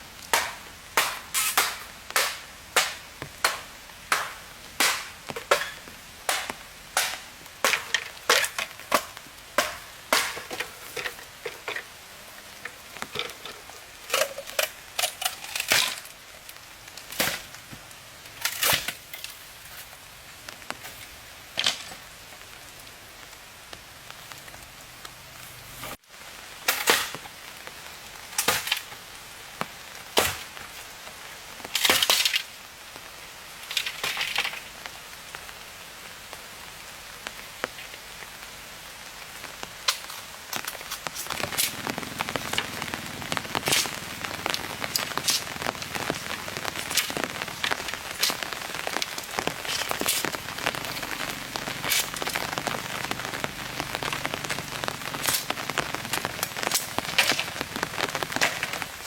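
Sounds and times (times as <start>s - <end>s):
wood cracking and knocking: 0.3s - 11.9s, 55.2s - 58.9s.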